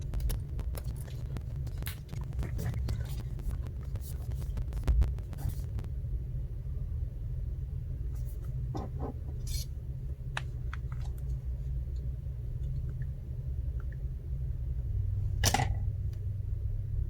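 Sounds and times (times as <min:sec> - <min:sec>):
small clicks and scrapes: 0:00.0 - 0:05.9
steady low hum: 0:00.0 - 0:17.0.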